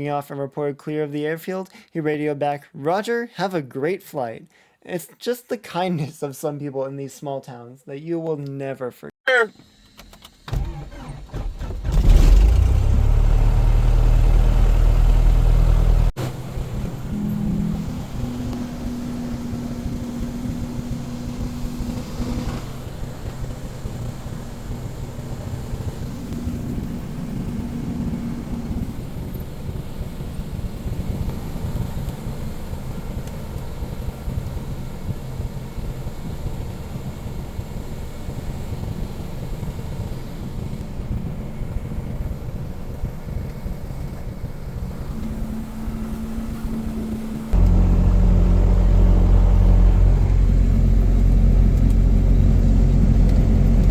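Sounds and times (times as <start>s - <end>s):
airplane piston engine drone: 15.2s - 53.9s.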